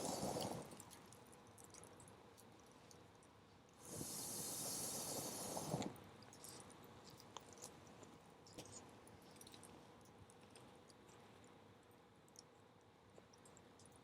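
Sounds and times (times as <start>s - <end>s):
loud hiss with low rumble: 0.0s - 0.8s, 3.8s - 6.1s.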